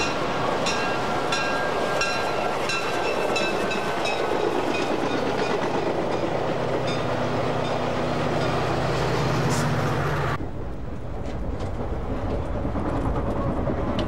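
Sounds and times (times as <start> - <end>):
train rumble: 0.0 - 14.0
wheels clickety-clack: 11.0 - 14.0.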